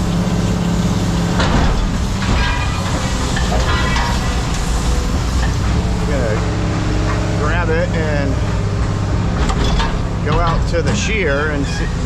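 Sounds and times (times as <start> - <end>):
diesel machinery humming: 0.0 - 12.0
metal clanks: 1.3 - 12.0.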